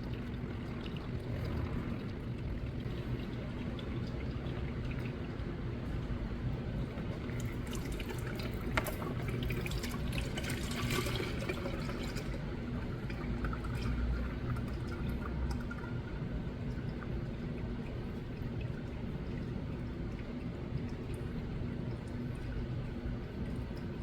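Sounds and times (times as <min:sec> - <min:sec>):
low hum: 0:00.0 - 0:05.2
oil pouring and splashing: 0:00.0 - 0:24.0.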